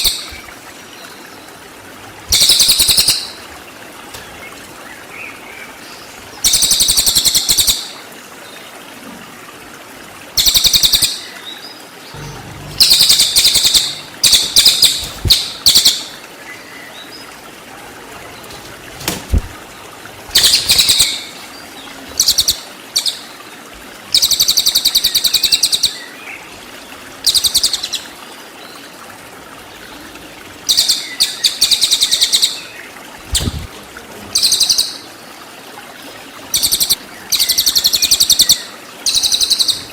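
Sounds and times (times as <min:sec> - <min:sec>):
songbird singing fast bursts: 0:12.2 - 0:16.1.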